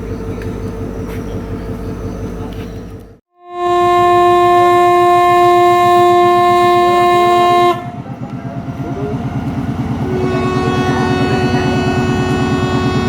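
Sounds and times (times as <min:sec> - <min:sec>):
locomotive engine throbbing: 0:00.0 - 0:13.0
train horn blast: 0:03.3 - 0:08.1, 0:10.0 - 0:13.0.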